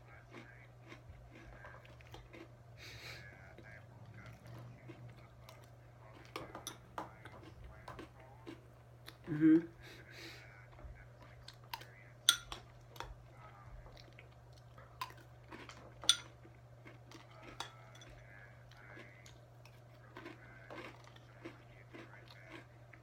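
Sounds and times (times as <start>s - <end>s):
metal spoon clinking against bowl: 6.4s - 7.1s, 12.3s - 13.1s, 16.0s - 16.4s, 17.4s - 18.2s.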